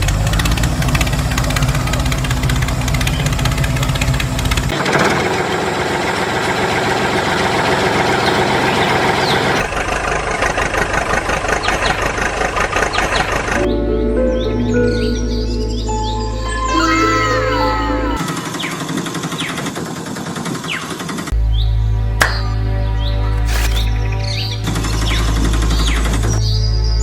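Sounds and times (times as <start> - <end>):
engine running: 0.0 - 13.7, 23.1 - 26.4
bird-like chirps: 14.4 - 19.8.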